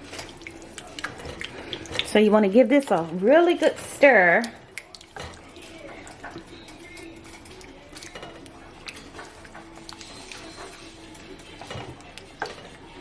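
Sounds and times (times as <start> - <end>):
spoon stirring stew: 0.0 - 13.0
spoon clinking and scraping pot: 3.7 - 13.0.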